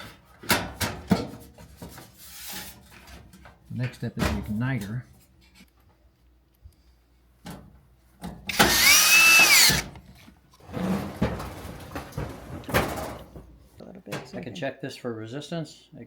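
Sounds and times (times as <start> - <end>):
cordless drill motor whining: 8.5 - 9.9.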